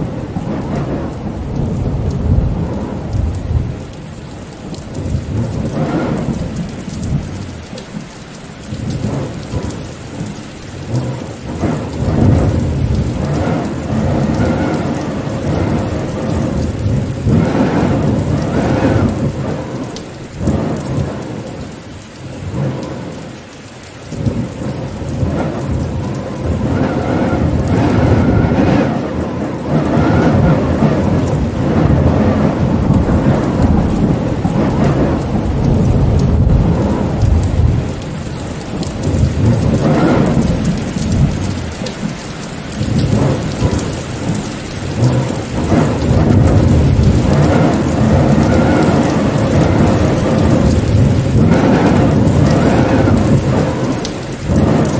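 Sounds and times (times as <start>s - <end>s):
heavy rain: 0.0s - 54.9s
low rumbling: 24.1s - 41.9s.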